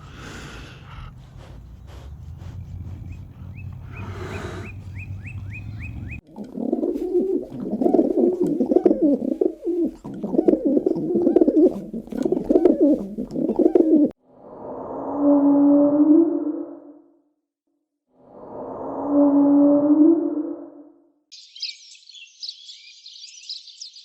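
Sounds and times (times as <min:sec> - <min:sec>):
low rumble: 0:00.0 - 0:06.2
bird cooing: 0:00.0 - 0:14.1.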